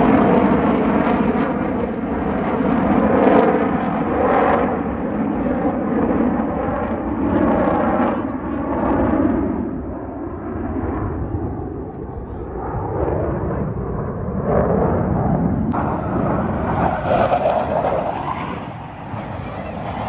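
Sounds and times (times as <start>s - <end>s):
airplane engine rushing: 0.0s - 20.0s
voices: 4.0s - 20.0s.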